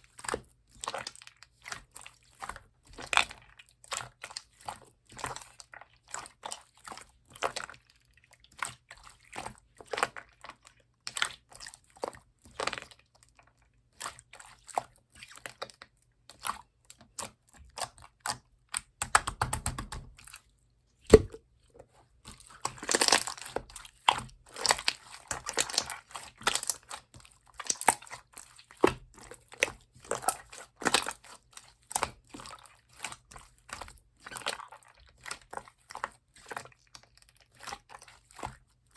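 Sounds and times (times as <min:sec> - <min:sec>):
wet pops and crackles: 0:18.2 - 0:20.1, 0:21.1 - 0:21.4
slime squished by hand: 0:21.1 - 0:21.4, 0:22.4 - 0:27.0.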